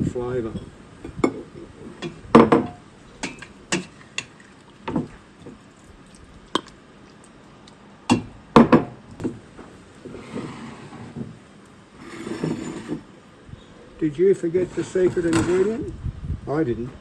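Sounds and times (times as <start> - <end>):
utensils clinking against a pot: 0.5 - 4.4.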